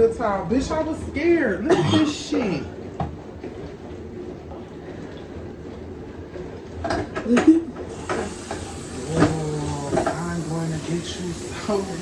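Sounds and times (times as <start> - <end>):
person's voice: 9.0 - 12.0.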